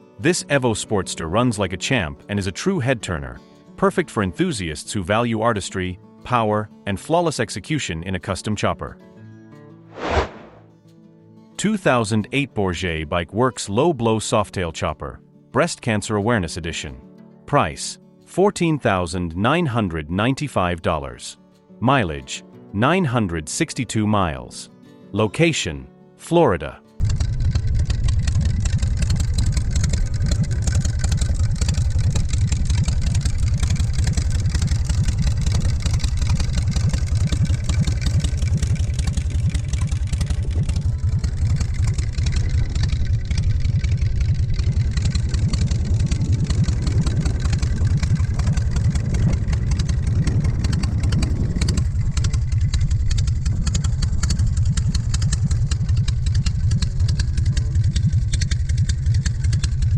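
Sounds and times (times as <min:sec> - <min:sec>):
motorcycle engine idling: 0:27.0 - 0:59.9.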